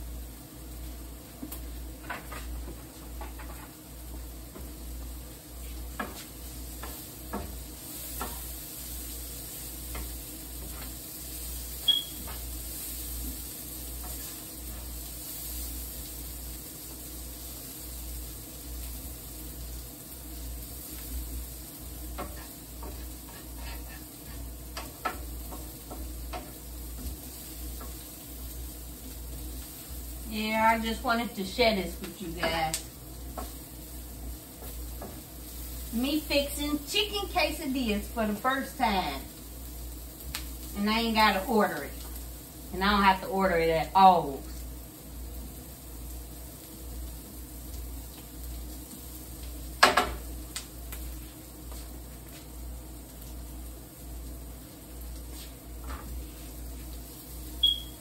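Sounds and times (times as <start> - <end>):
food sizzling in a pan: 0.0 - 58.0
wooden spatula scraping a pan: 5.6 - 11.0, 12.2 - 15.5, 22.1 - 28.1.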